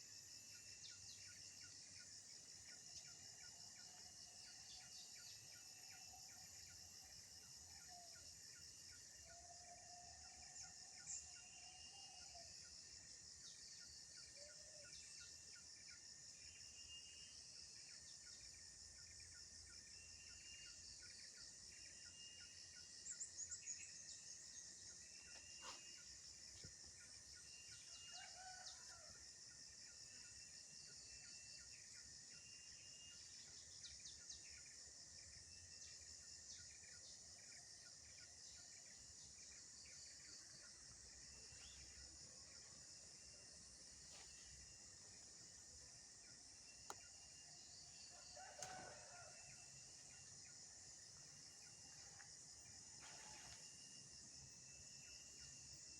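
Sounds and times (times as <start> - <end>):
insects chirring: 0.0 - 55.9
rooster crowing: 48.1 - 49.4.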